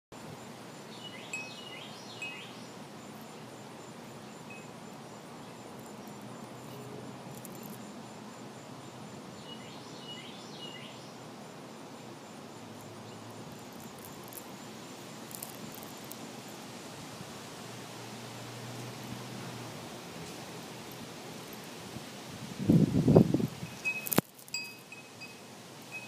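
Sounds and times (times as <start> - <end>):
outdoor background noise: 0.1 - 26.0
birds chirping: 0.9 - 3.4.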